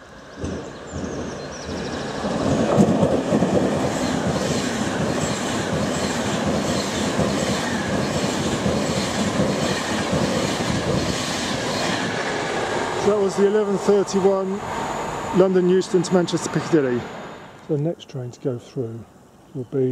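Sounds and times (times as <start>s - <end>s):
train rushing past: 0.0s - 18.0s
wheels clattering over rail joints: 0.3s - 12.2s.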